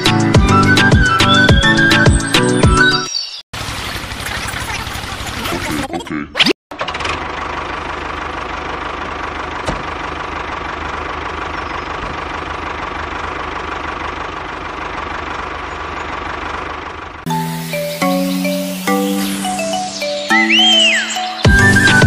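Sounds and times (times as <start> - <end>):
music: 0.0 - 3.1, 17.3 - 22.0
small engine idling: 3.6 - 5.6, 6.7 - 18.1.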